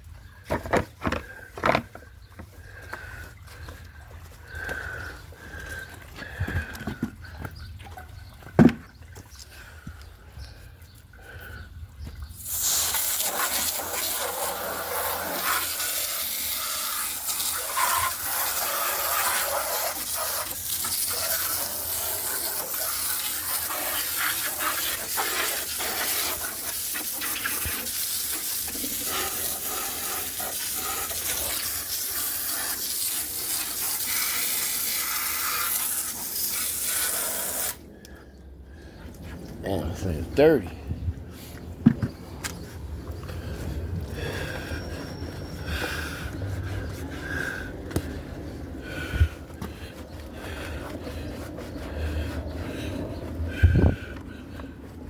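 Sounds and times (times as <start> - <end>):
hose spraying water: 12.4 - 37.8.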